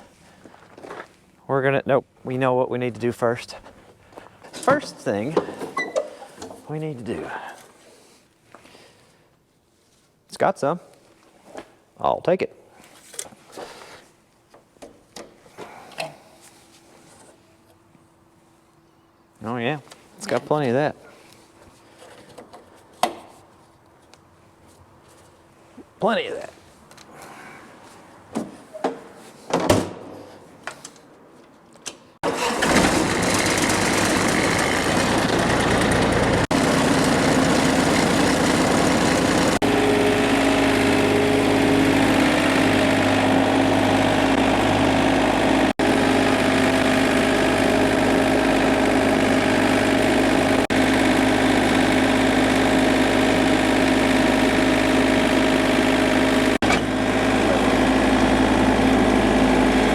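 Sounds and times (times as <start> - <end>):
tractor diesel engine starting: 32.2 - 59.9.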